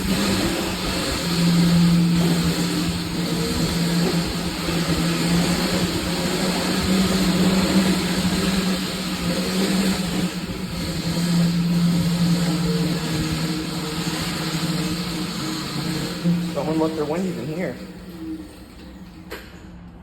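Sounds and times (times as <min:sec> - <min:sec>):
electric motor whining: 0:00.0 - 0:19.2.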